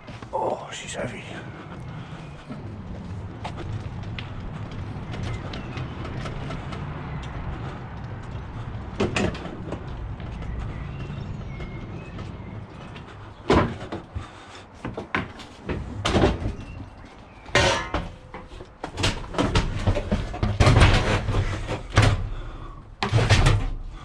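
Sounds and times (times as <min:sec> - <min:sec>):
scraping and rumbling: 0:00.0 - 0:24.0
metal casing clunks and bangs: 0:07.6 - 0:24.0.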